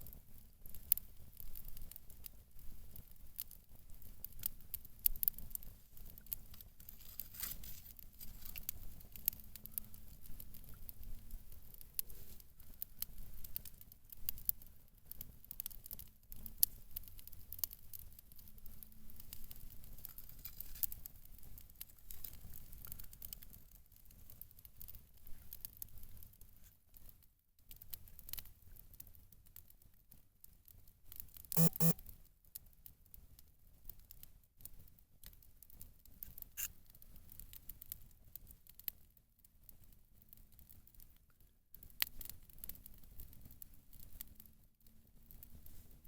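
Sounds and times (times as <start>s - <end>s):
campfire crackling and popping: 0.0s - 26.4s, 41.7s - 44.3s.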